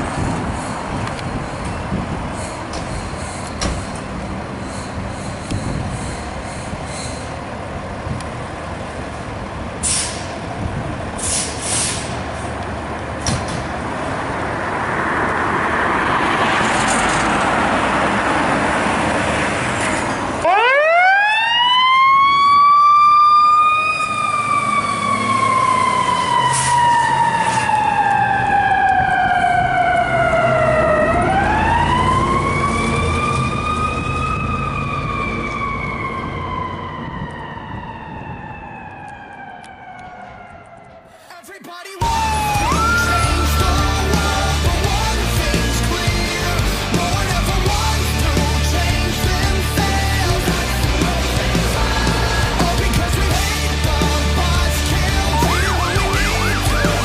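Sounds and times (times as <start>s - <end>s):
truck engine and road noise: 0.0s - 57.0s
mechanical siren wailing: 20.4s - 41.1s, 42.0s - 44.6s, 55.0s - 57.0s.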